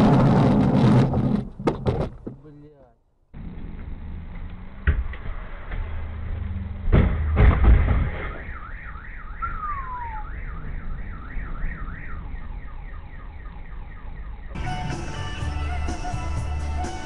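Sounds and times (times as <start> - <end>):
road collision crash: 4.8 - 8.8
car alarm warbling: 8.3 - 17.0.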